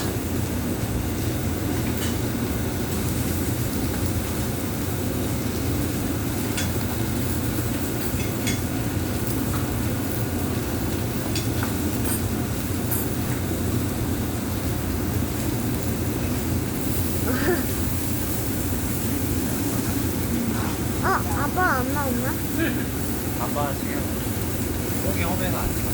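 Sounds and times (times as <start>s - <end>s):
griddle low rumble: 14.4s - 25.9s.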